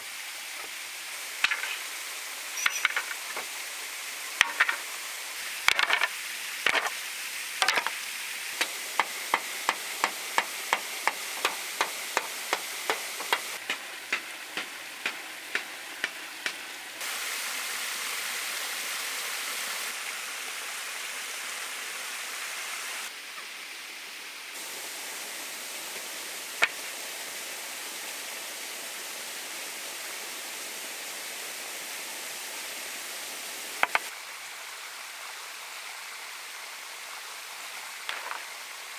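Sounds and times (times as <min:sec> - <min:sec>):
sharp knocks: 0:08.6 - 0:16.6.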